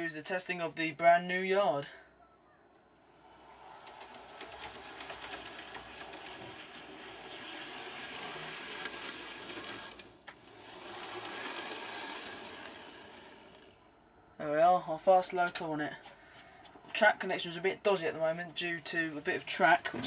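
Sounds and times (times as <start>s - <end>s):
wheels clicking on rails: 3.0s - 15.8s
small electric motor whirring: 3.2s - 14.1s.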